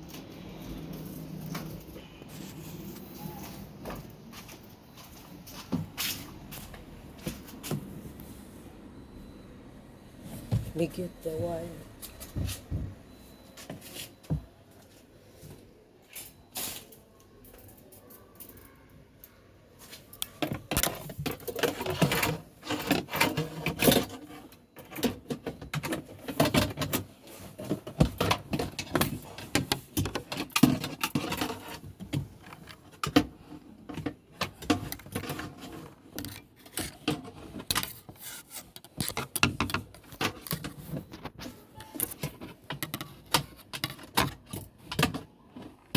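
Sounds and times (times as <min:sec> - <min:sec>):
wire rattling and scraping in pipe: 0:20.6 - 0:41.4.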